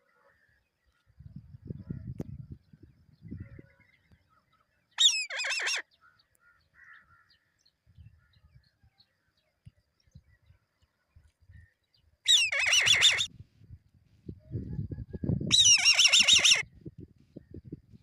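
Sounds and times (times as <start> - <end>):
eagle chick squawking: 5.0 - 5.8, 12.3 - 13.3, 15.5 - 16.6.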